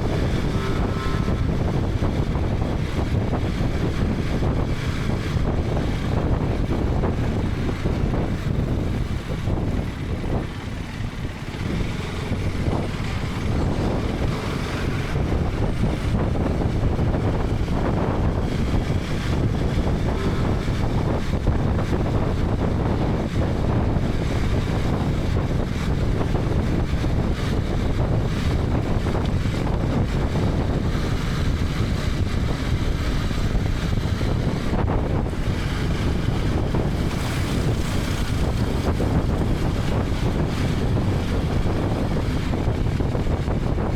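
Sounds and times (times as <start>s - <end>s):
motorcycle engine: 0.0s - 43.9s
road noise: 0.0s - 43.9s
wind rushing over microphone: 0.0s - 43.9s.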